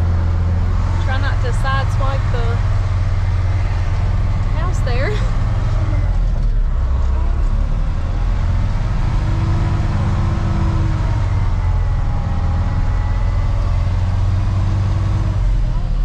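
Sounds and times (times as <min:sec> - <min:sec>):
truck engine droning: 0:00.0 - 0:16.0.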